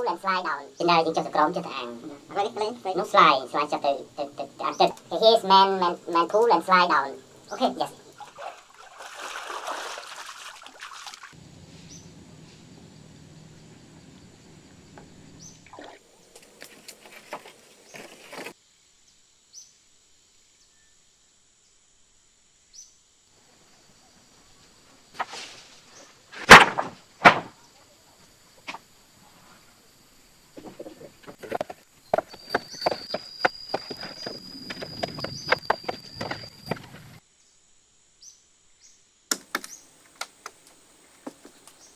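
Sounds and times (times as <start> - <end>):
short bird chirps: 11.8 - 12.1
rustles and clicks: 16.3 - 18.6, 30.6 - 37.2
loud knocks: 26.5 - 27.6.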